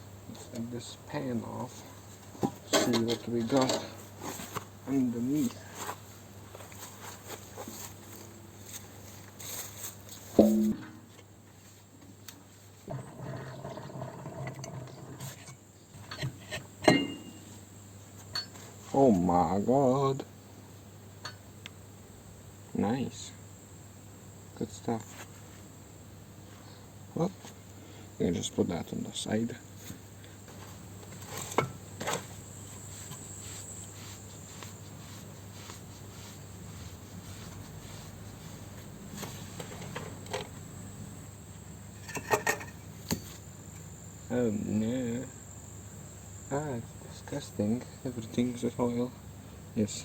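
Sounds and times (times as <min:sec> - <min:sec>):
faint hiss with low hum: 0:00.0 - 0:50.0
metal knocks: 0:10.4 - 0:11.2
metal scraping and rubbing: 0:12.9 - 0:17.3
sharp metallic clink: 0:16.8 - 0:17.5.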